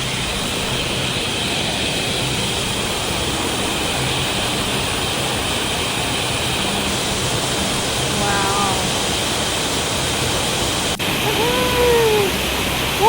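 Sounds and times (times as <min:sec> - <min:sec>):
high-pitched buzz: 0:00.0 - 0:09.4
waterfall rushing: 0:00.0 - 0:13.0.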